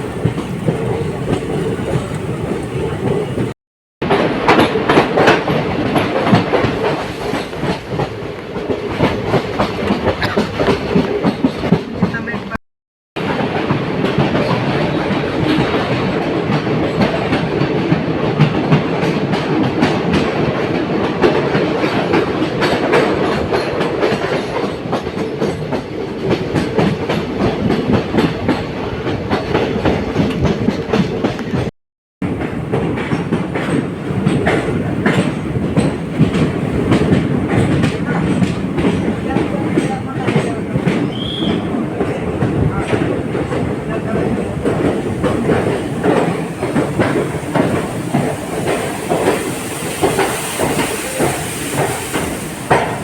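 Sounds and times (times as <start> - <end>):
wheels clattering over rail joints: 0.0 - 3.5, 32.2 - 53.0
train coaches rumbling: 0.0 - 12.6, 13.2 - 53.0.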